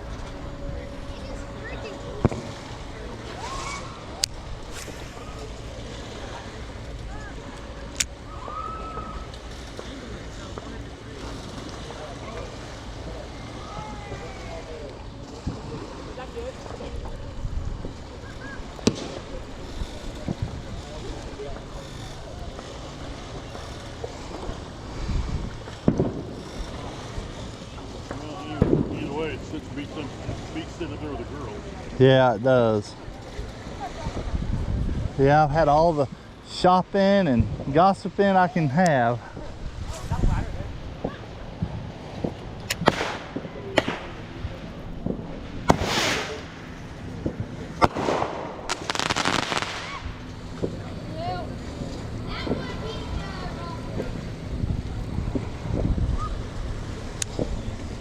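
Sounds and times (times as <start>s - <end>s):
boat noise on water: 0.0s - 58.0s
wind: 0.0s - 58.0s
fireworks crackling: 18.8s - 19.6s, 25.5s - 30.8s, 40.8s - 58.0s
fireworks bangs: 25.8s - 26.4s, 28.1s - 29.0s, 41.0s - 50.8s, 52.4s - 52.7s.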